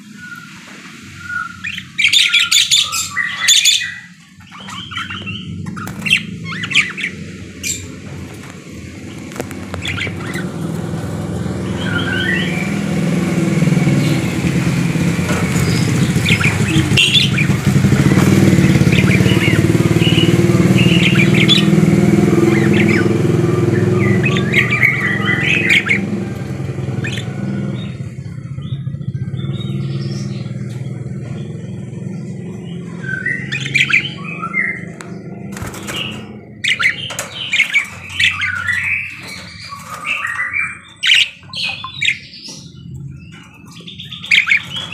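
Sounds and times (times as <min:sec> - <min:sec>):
budgerigars chirping: 0:00.0 - 0:44.9
engine hum: 0:00.0 - 0:44.9
budgerigar squawks: 0:01.6 - 0:07.9, 0:35.7 - 0:42.8, 0:43.7 - 0:44.9.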